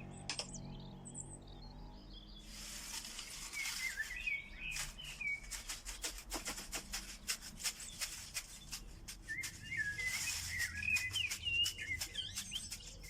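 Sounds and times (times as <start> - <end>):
sharp clicks: 0.3 - 0.6
songbird warbling: 2.3 - 6.2, 8.6 - 13.0.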